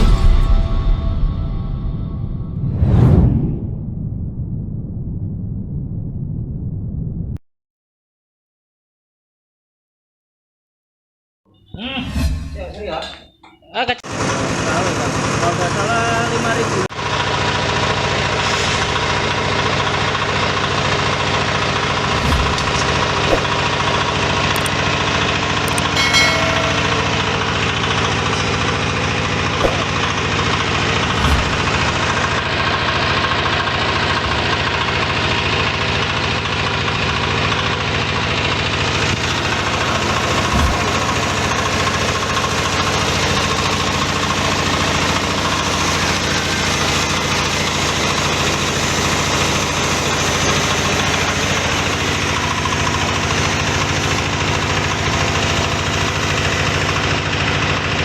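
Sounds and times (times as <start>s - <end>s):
pellet machine motor drone: 14.1s - 58.0s.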